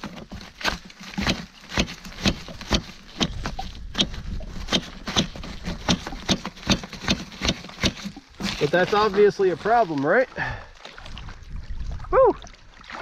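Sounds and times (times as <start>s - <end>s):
sharp knocks: 0.0s - 8.6s.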